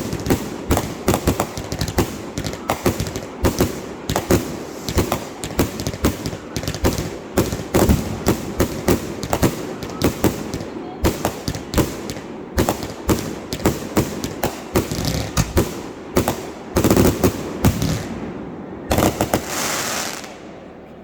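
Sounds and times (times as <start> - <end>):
fireworks bangs: 0.0 - 20.6.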